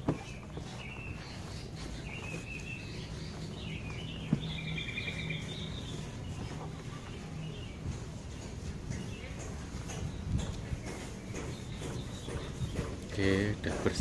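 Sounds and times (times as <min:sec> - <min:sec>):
small birds chirping: 0:00.0 - 0:14.0
bird trill: 0:00.2 - 0:06.6.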